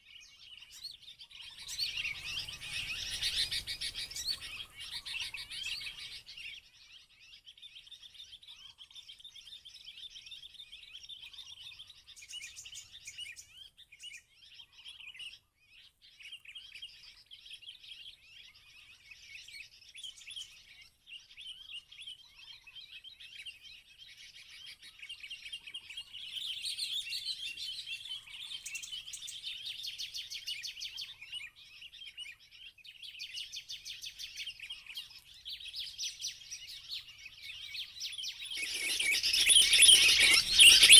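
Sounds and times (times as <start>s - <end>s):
faint low bird chirps: 37.6s - 40.9s
bird chattering trill: 38.4s - 40.9s.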